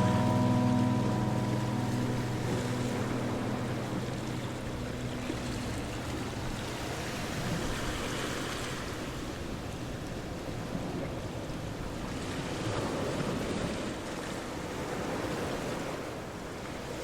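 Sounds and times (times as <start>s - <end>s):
guitar-like music: 0.0s - 8.5s
ocean waves washing onto shore: 0.0s - 17.0s.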